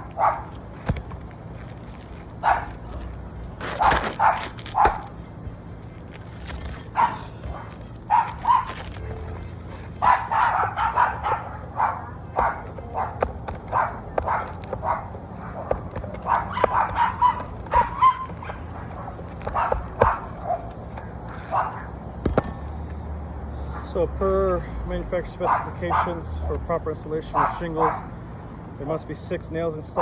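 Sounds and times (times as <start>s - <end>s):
dog barking and yipping: 0.0s - 1.0s, 1.6s - 5.3s, 6.2s - 21.9s, 25.4s - 26.2s.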